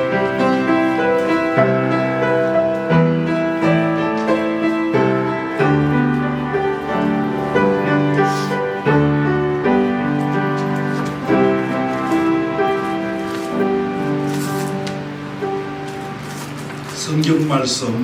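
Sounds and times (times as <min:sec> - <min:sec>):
piano playing slow chords: 0:00.0 - 0:17.3.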